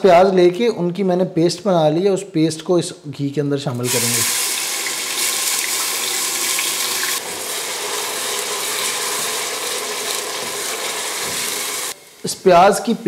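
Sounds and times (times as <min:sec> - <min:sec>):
onion paste sizzling in a pot: 0:03.8 - 0:13.0.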